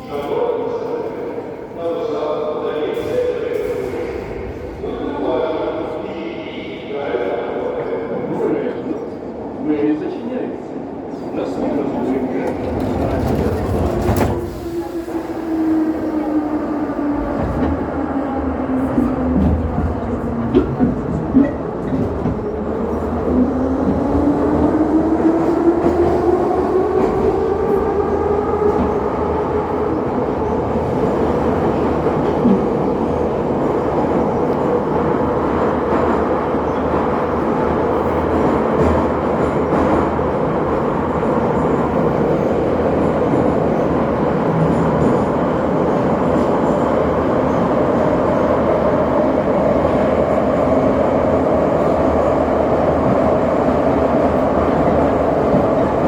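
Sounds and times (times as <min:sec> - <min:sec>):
train wheels rumbling on rails: 0:12.0 - 0:56.0.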